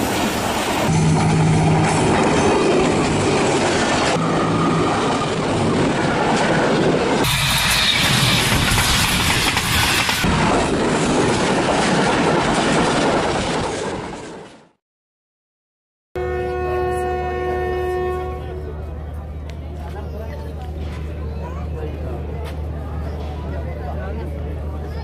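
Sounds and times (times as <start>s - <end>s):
locomotive engine running: 0.0s - 11.0s.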